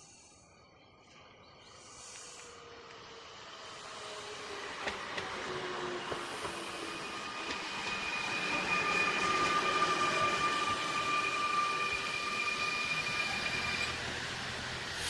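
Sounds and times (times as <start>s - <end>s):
train approaching on rails: 2.0s - 15.0s
high-pitched train squeal: 3.2s - 15.0s.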